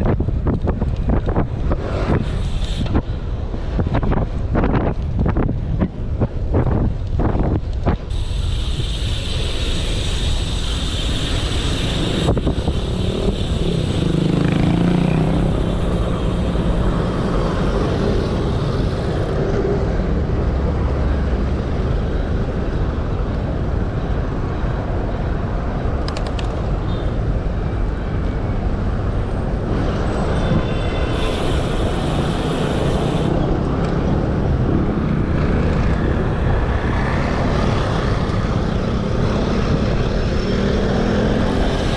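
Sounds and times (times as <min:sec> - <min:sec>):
passing traffic: 0:00.0 - 0:41.9
road noise: 0:00.0 - 0:41.9
wind rumbling on microphone: 0:00.0 - 0:41.9.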